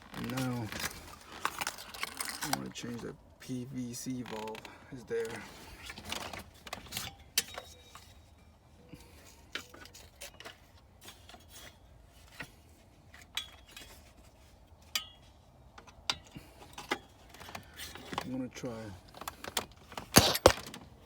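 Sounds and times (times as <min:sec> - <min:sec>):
tools clicking and clinking: 0:19.2 - 0:20.8.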